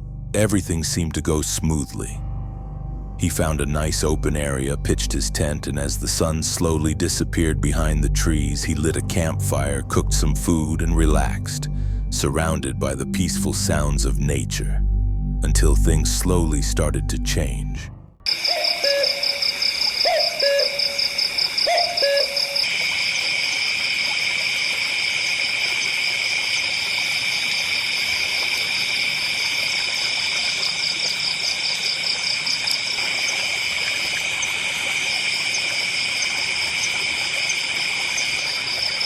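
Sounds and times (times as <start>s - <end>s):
owl hooting: 18.3s - 22.8s
insects trilling: 18.3s - 39.0s.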